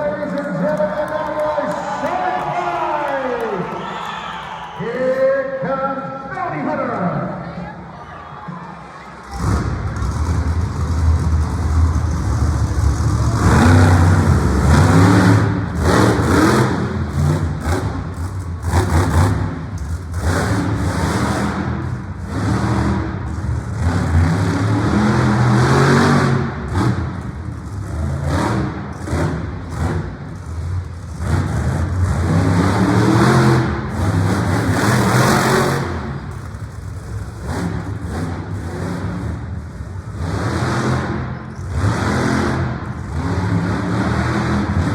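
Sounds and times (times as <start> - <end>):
monster truck engine revving: 9.2 - 44.9.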